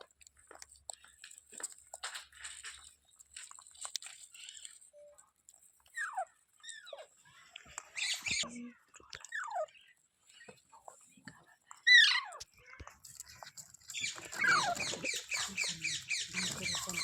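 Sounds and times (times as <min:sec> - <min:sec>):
clicks and crunching: 0:00.0 - 0:05.9, 0:12.4 - 0:17.0
rustling: 0:00.0 - 0:06.0, 0:12.5 - 0:17.0.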